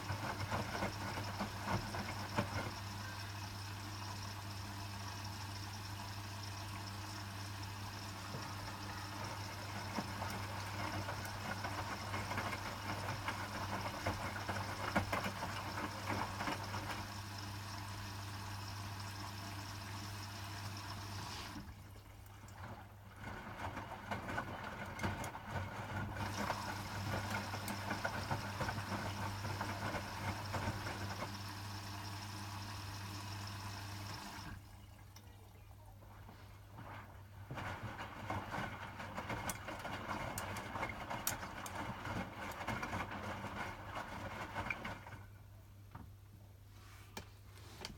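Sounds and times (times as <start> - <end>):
low machine hum: 0.0 - 46.0
washing machine drum turning: 6.6 - 18.1, 23.2 - 31.9.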